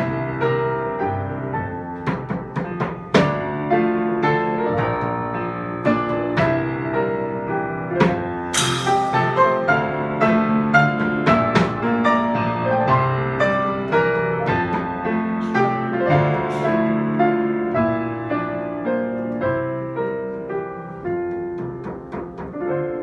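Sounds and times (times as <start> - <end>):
piano chords and melody: 0.0 - 23.0
light percussion strikes: 8.1 - 9.8
cymbal crash ringing: 8.5 - 9.6.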